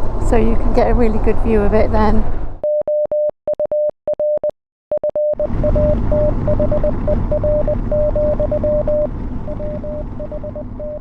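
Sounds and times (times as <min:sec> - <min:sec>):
morse code beeping tone: 0:02.6 - 0:11.0.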